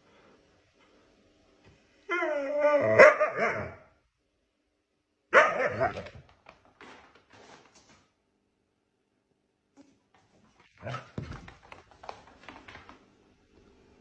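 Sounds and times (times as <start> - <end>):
dog barking: 2.9 - 3.8, 5.3 - 6.2.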